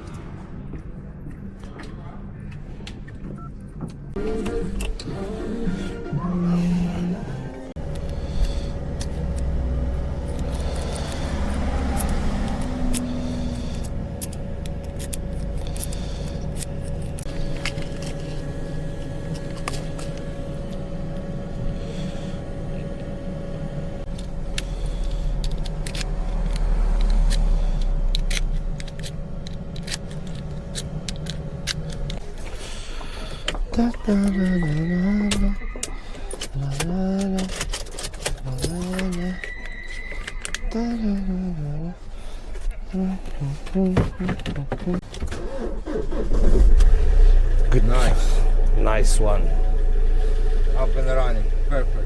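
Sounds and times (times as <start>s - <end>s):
vehicle engine humming: 0.0s - 52.0s
keys and metal tools jangling: 36.2s - 39.5s.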